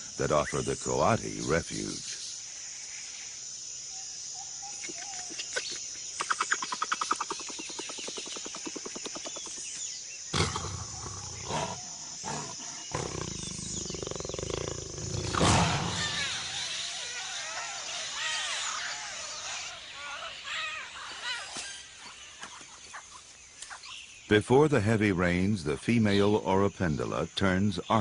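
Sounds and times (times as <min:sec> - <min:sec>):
high insect drone: 0:00.0 - 0:28.0
rapid chattering pulses: 0:06.2 - 0:09.7, 0:10.4 - 0:17.0
jaguar growling and snarling: 0:10.3 - 0:16.5.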